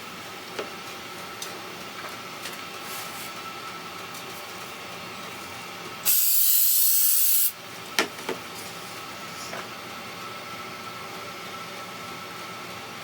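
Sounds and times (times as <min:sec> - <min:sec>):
spray hiss: 0:06.1 - 0:07.5.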